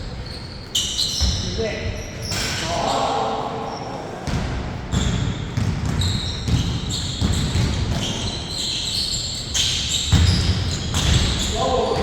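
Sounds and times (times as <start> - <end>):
basketball bouncing on a court: 4.2 - 8.6, 9.9 - 12.0.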